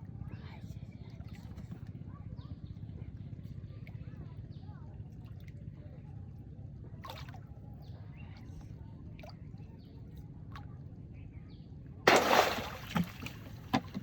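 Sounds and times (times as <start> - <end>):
low outdoor rumble: 0.0 - 14.0
water splashing loudly: 12.1 - 14.0.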